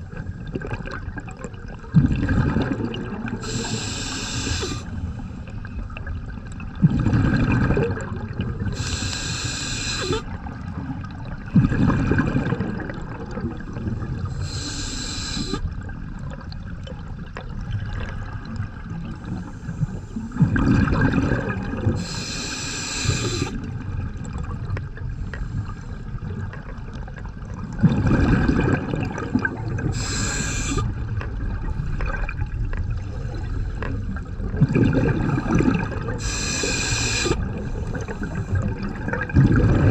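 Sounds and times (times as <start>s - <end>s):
bubbling exhalations underwater: 0.0s - 4.8s, 6.6s - 9.0s, 10.0s - 14.6s, 20.3s - 22.4s, 27.3s - 39.9s
water noise: 0.0s - 39.9s
hissing regulator inhalations: 3.4s - 5.5s, 8.8s - 10.3s, 14.2s - 15.7s, 22.0s - 23.6s, 29.8s - 30.9s, 36.1s - 38.8s.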